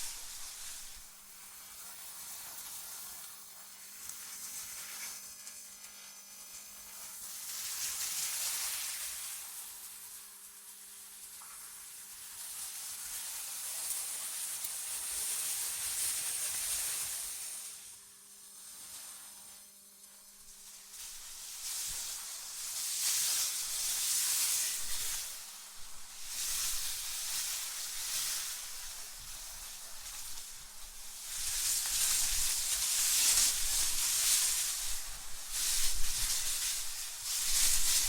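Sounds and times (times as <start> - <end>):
wind gusts hissing: 0.0 - 1.1.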